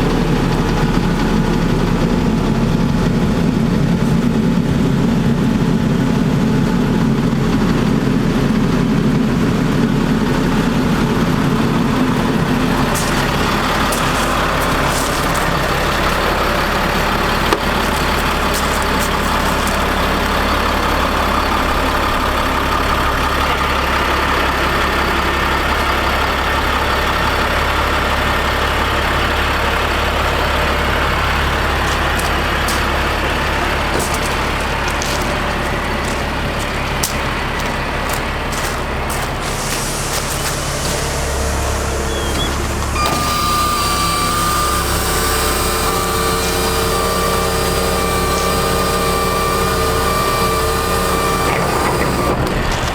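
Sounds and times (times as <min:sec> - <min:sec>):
diesel truck engine running: 0:00.0 - 0:52.9
higher running tone: 0:11.6 - 0:20.6.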